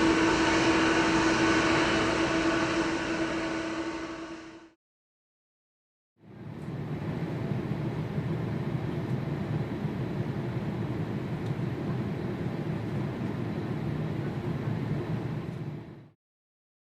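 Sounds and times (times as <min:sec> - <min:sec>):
jet engines rumbling: 0:00.0 - 0:04.8.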